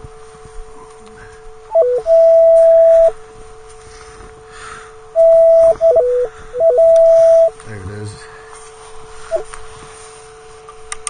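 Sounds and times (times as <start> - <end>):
metal detector high signal tone: 1.7 - 3.2, 5.1 - 7.6
metal detector low threshold tone: 1.7 - 3.3, 5.1 - 7.7.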